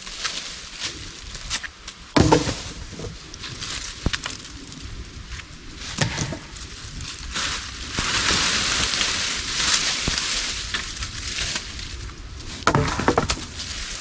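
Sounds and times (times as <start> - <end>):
dry leaves rustling: 0.0 - 14.0
wooden sticks knocking: 2.2 - 3.1, 6.0 - 6.6, 12.7 - 13.6.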